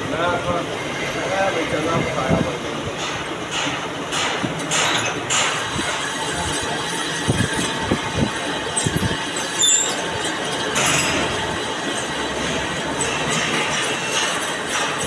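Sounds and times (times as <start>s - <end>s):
metal lathe running: 0.0s - 15.0s
knocks and clatter: 3.0s - 6.6s, 8.8s - 15.0s
high squeak: 9.4s - 10.4s.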